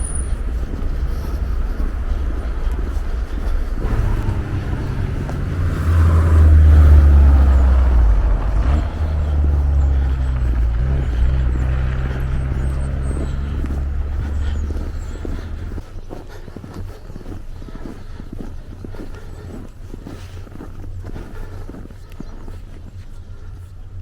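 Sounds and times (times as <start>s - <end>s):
passing vehicle engine hum: 0.0s - 16.0s.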